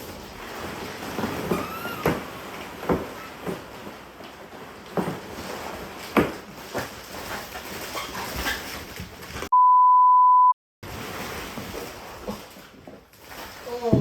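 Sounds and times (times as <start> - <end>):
censor bleep: 9.5 - 10.6.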